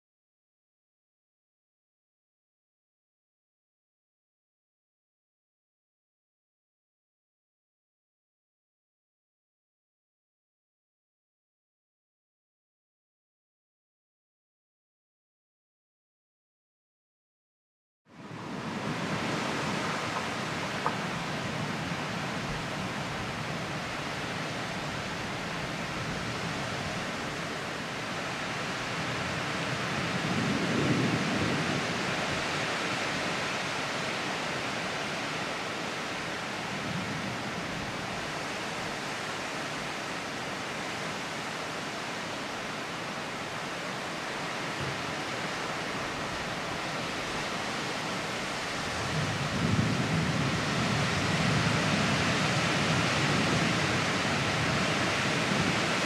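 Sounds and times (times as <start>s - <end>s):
heavy rain falling: 18.2s - 56.0s
thunder rumbling: 48.5s - 56.0s.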